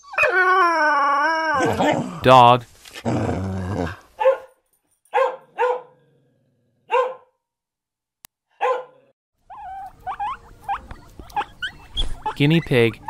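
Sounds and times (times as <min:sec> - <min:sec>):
dog barking: 0:04.2 - 0:06.0, 0:06.9 - 0:07.4, 0:08.5 - 0:12.4
guinea pig squeaky whistle: 0:09.5 - 0:13.0.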